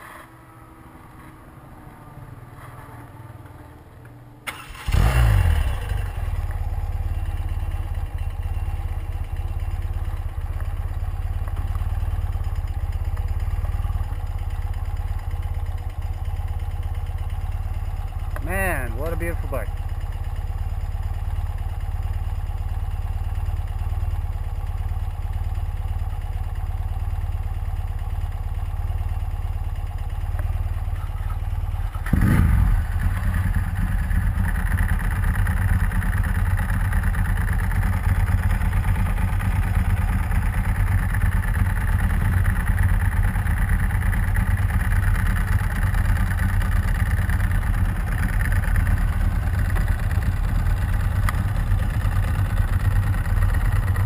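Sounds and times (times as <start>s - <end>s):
motorcycle engines idling: 0.0s - 54.0s
motorcycle engines revving: 4.8s - 6.6s, 31.0s - 34.3s.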